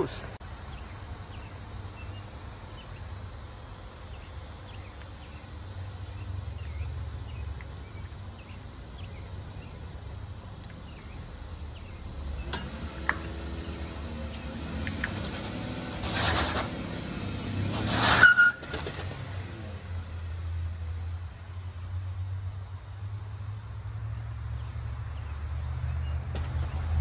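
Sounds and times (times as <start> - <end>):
small birds chirping: 0.1 - 15.2
car engine running: 0.7 - 21.8.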